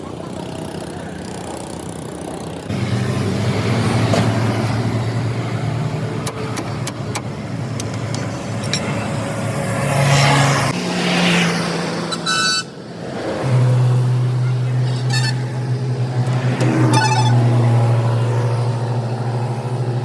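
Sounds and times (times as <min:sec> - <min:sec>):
engine hum: 0:00.0 - 0:20.0
vehicle passing: 0:07.4 - 0:20.0.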